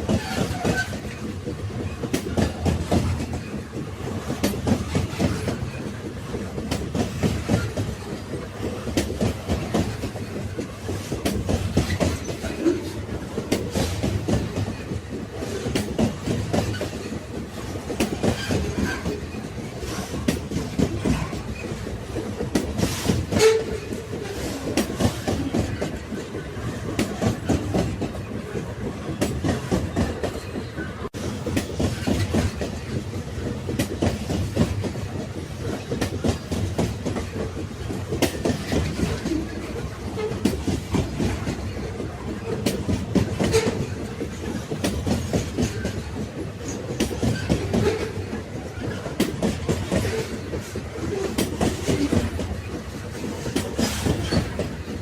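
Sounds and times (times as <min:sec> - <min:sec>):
train carriages rumbling: 0:00.0 - 0:55.0.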